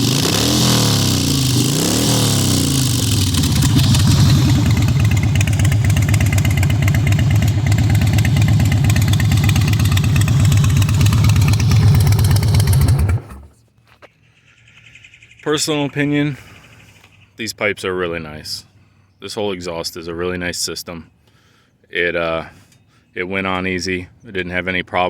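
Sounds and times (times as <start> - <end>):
motorcycle engine revving and idling: 0.0 - 13.5.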